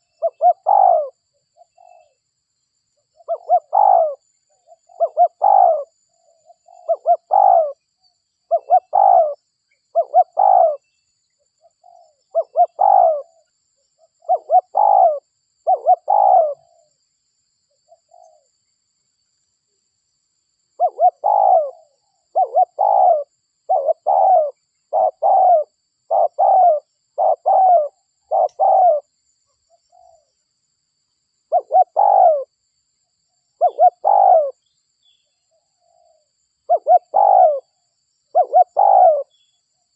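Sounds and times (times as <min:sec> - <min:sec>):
dove cooing: 0:00.0 - 0:02.2, 0:03.2 - 0:07.8, 0:08.5 - 0:10.9, 0:11.7 - 0:13.4, 0:14.0 - 0:16.9, 0:20.8 - 0:29.1, 0:31.5 - 0:32.5, 0:33.6 - 0:34.6, 0:35.8 - 0:39.5.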